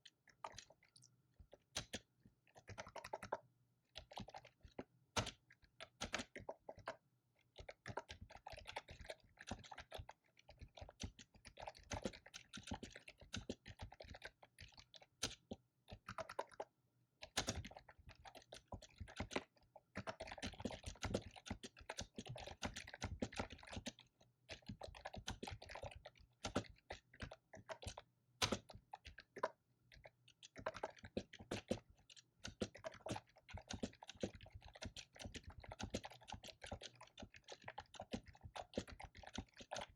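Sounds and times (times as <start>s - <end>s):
fast typing on keyboard: 2.6s - 3.4s, 4.0s - 7.0s, 7.6s - 39.9s.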